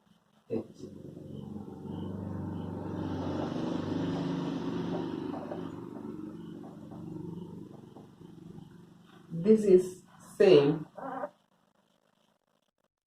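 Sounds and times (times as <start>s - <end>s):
vehicle engine humming: 0.7s - 10.3s.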